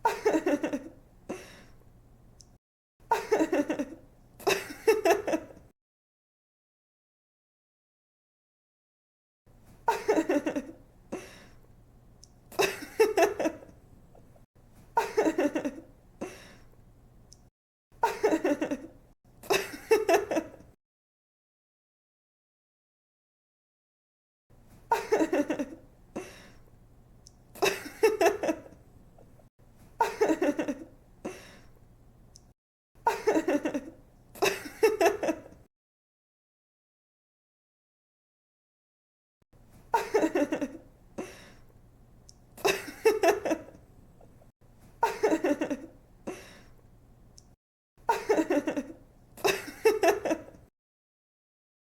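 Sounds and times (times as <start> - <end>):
young woman laughing: 0.0 - 1.0, 3.1 - 5.6, 9.8 - 10.8, 12.5 - 13.8, 15.0 - 15.9, 18.0 - 20.7, 24.9 - 26.3, 27.6 - 28.8, 30.0 - 30.9, 33.1 - 35.6, 39.9 - 40.9, 42.6 - 43.8, 45.0 - 46.5, 48.1 - 50.6.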